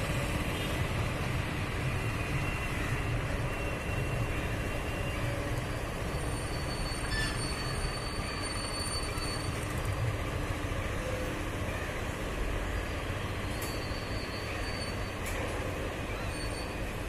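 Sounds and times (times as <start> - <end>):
goods train rumbling: 0.0 - 17.0
high wheel squeal: 4.9 - 9.9, 13.4 - 17.0.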